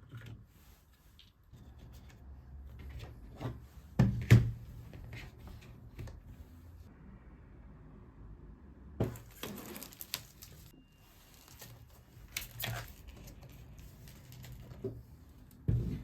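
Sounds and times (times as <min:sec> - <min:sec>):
handling rustles: 0:09.0 - 0:16.0.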